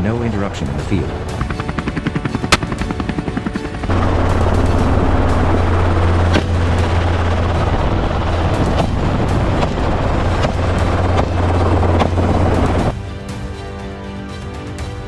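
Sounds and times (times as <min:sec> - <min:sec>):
helicopter drone: 0:00.0 - 0:14.9
music: 0:00.0 - 0:15.0
sharp cracks: 0:02.5 - 0:03.0.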